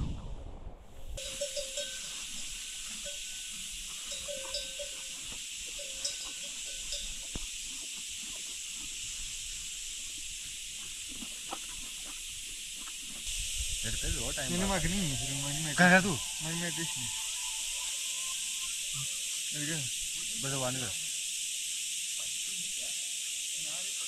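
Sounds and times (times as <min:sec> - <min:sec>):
steady hiss: 0:00.0 - 0:24.0
livestock bell clinking: 0:01.2 - 0:09.3, 0:14.0 - 0:20.8.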